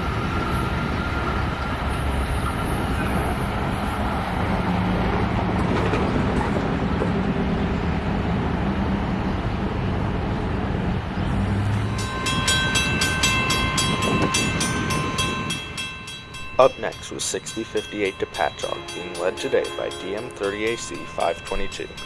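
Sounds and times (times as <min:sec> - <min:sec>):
locomotive engine hum: 0:00.0 - 0:22.0
train cars rumbling: 0:00.0 - 0:22.0
bell ringing rapidly: 0:11.8 - 0:22.0.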